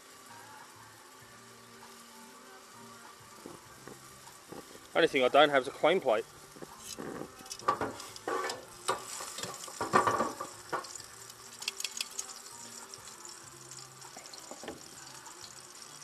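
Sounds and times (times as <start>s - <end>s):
fish sizzling in frying pan: 0.0s - 16.0s
metal tongs knocking pan: 7.4s - 11.0s.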